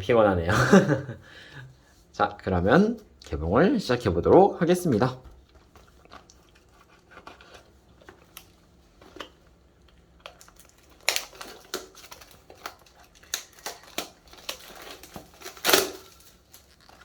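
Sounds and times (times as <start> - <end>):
wrapping crinkling: 4.2 - 17.0
cardboard rustling and tearing: 10.3 - 17.0.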